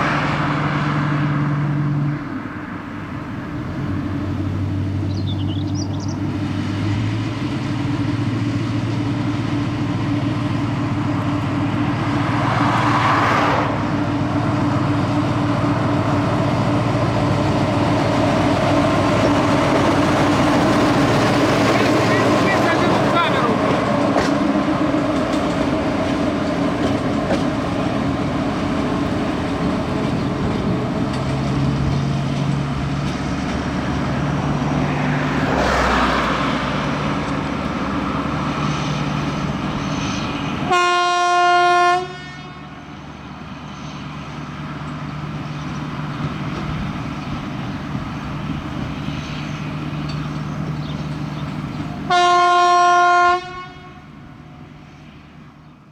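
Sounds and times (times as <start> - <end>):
locomotive engine low hum: 0.0 - 55.9
locomotive horn blasts: 40.7 - 42.8, 52.1 - 54.3.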